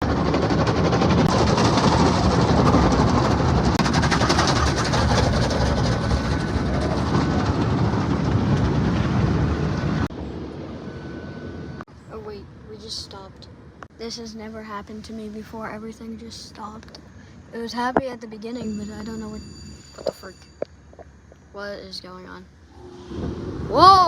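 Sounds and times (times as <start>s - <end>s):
car wash machinery clattering: 0.0s - 9.8s
faint thin tone: 18.6s - 20.7s.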